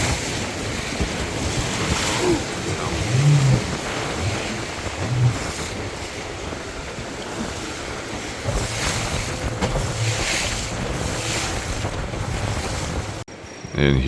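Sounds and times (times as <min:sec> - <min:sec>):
rapids rushing: 0:00.0 - 0:13.2
wind buffeting microphone: 0:00.0 - 0:13.7.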